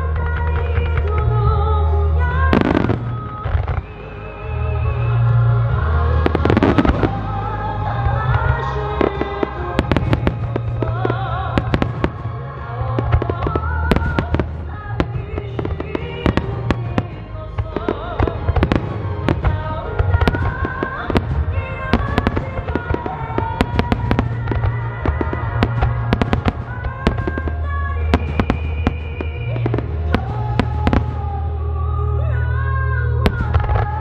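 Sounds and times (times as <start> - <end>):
fireworks bangs and crackles: 0.0 - 31.7, 33.2 - 34.0.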